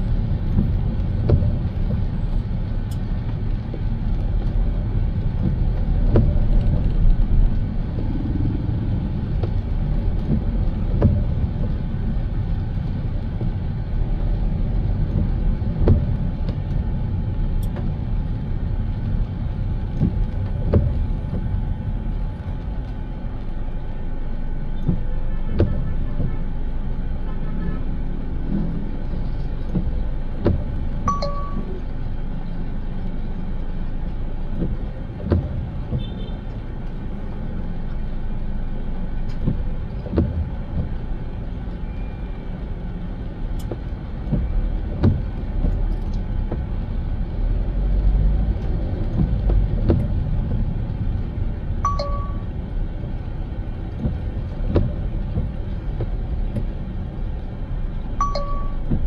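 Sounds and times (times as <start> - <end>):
car road and engine rumble: 0.0 - 59.0
sharp clicks and knocks: 28.5 - 31.8, 34.5 - 37.0, 39.2 - 41.0, 43.6 - 46.8, 48.6 - 51.3, 53.9 - 56.8.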